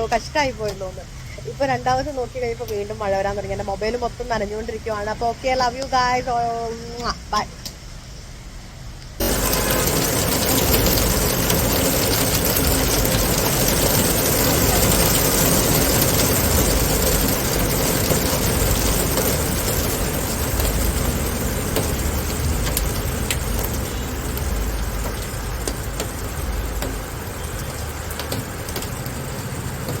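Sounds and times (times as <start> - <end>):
low rumble: 9.2 - 28.2
heavy rain falling: 9.2 - 30.0
sharp ticks: 9.2 - 30.0.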